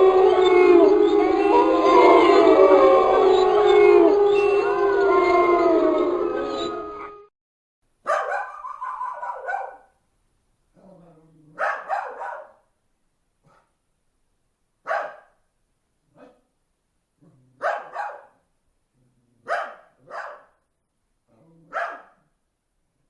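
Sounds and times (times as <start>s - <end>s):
dog barking: 8.0s - 10.0s, 11.6s - 12.7s, 13.4s - 13.8s, 14.8s - 15.4s, 16.2s - 16.5s, 17.6s - 18.4s, 19.4s - 20.6s, 21.7s - 22.3s.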